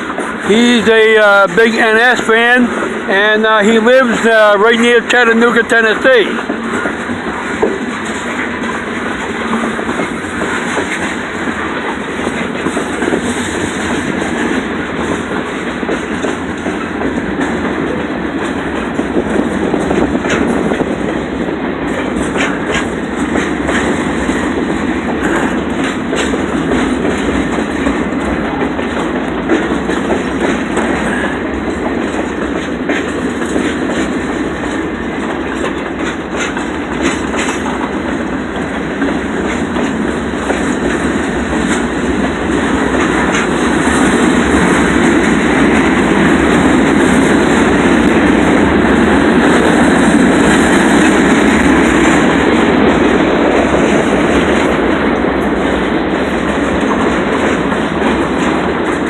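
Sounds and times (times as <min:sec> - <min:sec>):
freight train rumbling past: 0:00.0 - 0:59.0
wheels clicking over rail joints: 0:00.0 - 0:59.0.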